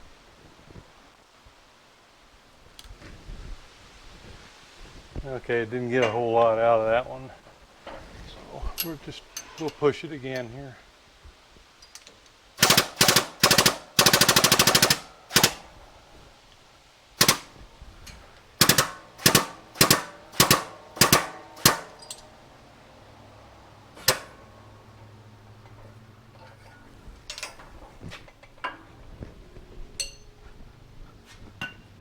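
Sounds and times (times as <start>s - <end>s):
shop press metallic clacks: 12.6s - 15.8s, 17.2s - 22.7s, 23.8s - 25.0s.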